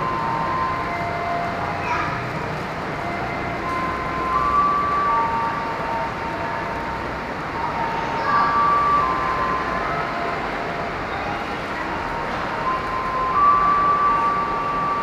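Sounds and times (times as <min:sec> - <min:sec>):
electric train rumbling on rails: 0:00.0 - 0:15.0
thin high tones: 0:03.0 - 0:15.0.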